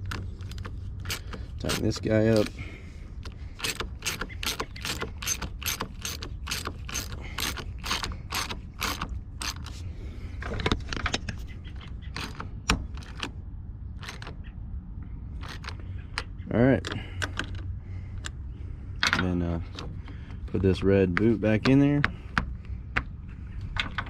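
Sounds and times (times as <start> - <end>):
socket ratchet clicking: 3.2 - 9.7.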